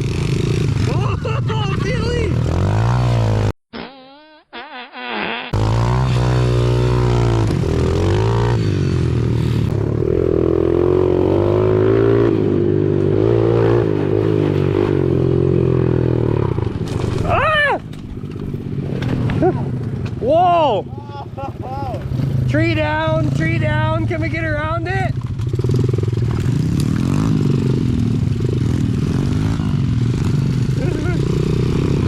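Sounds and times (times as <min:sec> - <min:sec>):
small motorcycle engine revving: 0:05.5 - 0:17.3, 0:25.4 - 0:32.0.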